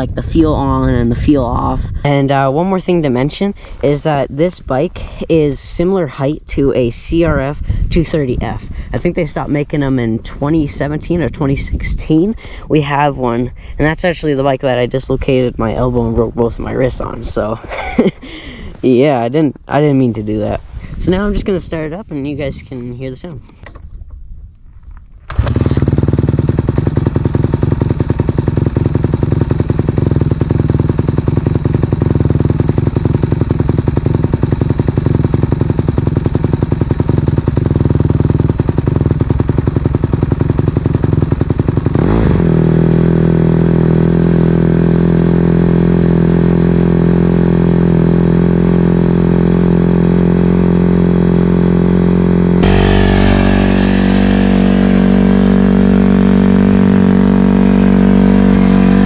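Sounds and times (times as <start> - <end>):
motorcycle engine running: 25.3 - 59.0.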